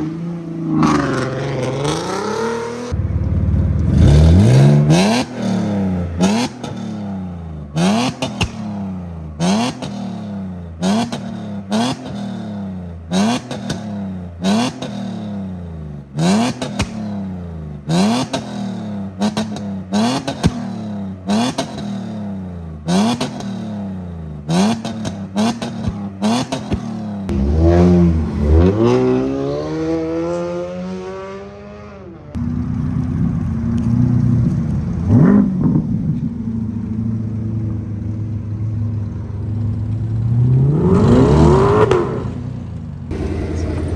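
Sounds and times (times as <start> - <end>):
car engine revving: 0.0 - 43.9
sharp exhaust cracks: 3.0 - 12.3.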